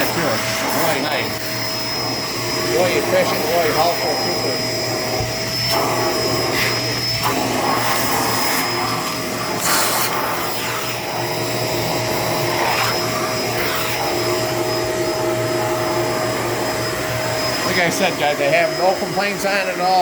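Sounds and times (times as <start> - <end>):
vacuum cleaner motor whine: 0.0 - 20.0
vacuum hose moving over surface: 0.0 - 20.0
scraping rush of suction: 4.1 - 19.3.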